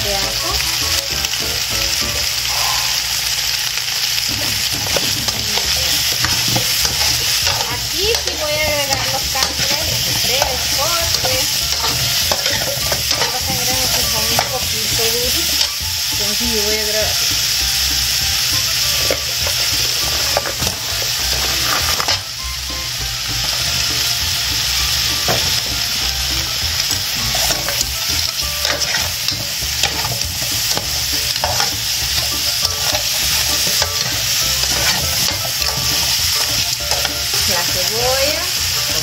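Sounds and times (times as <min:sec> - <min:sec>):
food sizzling in hot oil: 0:00.0 - 0:39.0
metal spoon scraping a pot: 0:04.4 - 0:14.7, 0:18.9 - 0:22.2, 0:27.2 - 0:37.5.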